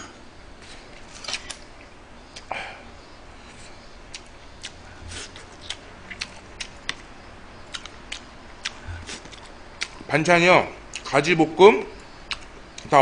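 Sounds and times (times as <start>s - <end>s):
person chewing food: 3.4s - 10.1s, 10.9s - 11.1s, 12.0s - 12.9s.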